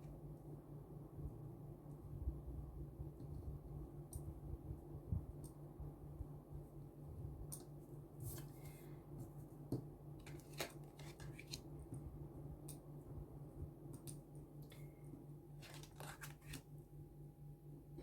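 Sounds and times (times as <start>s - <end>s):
steady low hum: 0.0s - 18.0s
cards shuffling and snapping: 10.2s - 11.7s, 15.6s - 16.7s.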